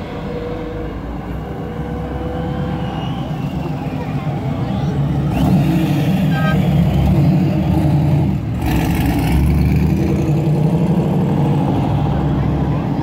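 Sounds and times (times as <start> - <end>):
car engines running at low speed: 0.0 - 13.0
sports car engine revving: 5.3 - 11.5.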